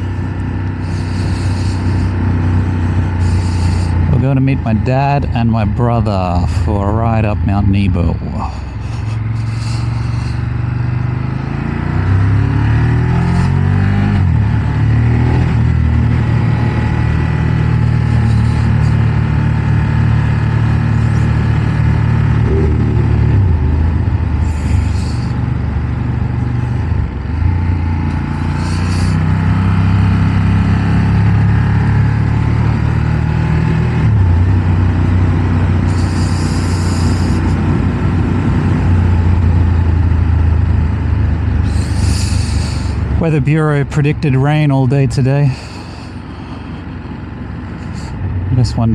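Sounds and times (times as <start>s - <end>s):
motorcycle engine: 0.0s - 48.9s
wind and road noise: 0.0s - 48.9s.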